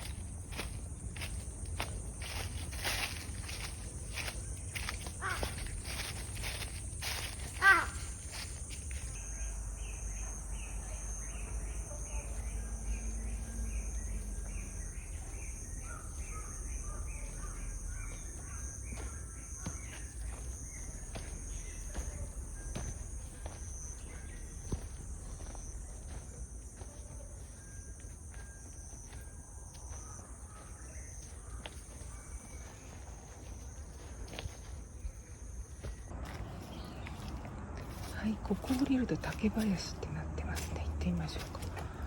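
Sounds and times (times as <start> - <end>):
insects shrilling: 0.0 - 32.8
footsteps on a woodland path: 0.0 - 42.0
bird chirps: 2.2 - 42.0.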